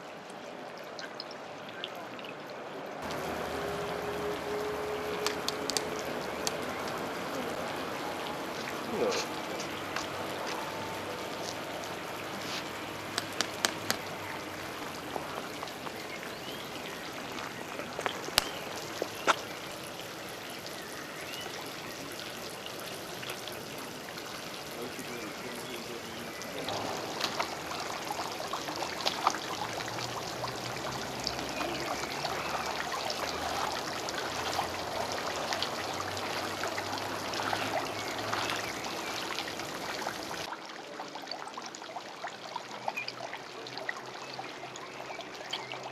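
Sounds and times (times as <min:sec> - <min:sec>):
water trickling and splashing: 0:00.0 - 0:45.9
sharp clicks: 0:05.2 - 0:06.7.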